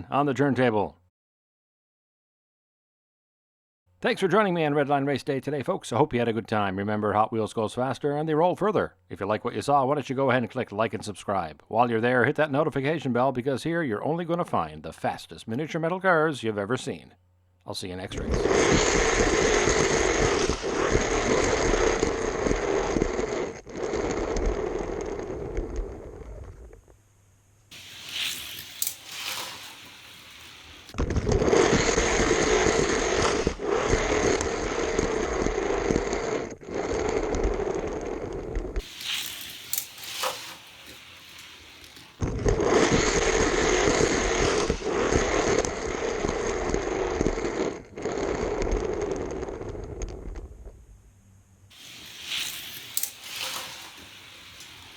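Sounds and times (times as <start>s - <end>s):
scraping rattling mechanical noise: 27.7s - 31.0s.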